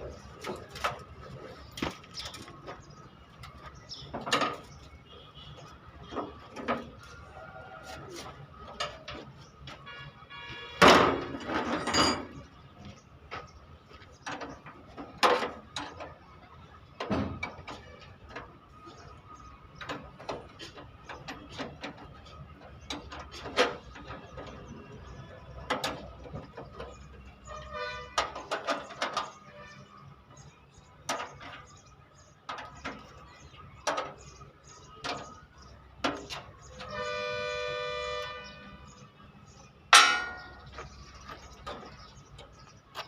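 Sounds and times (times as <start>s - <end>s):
metal knocks and clanks: 0.1s - 4.9s, 10.8s - 12.6s, 17.0s - 18.6s, 28.1s - 29.5s, 32.4s - 34.4s, 39.9s - 43.0s.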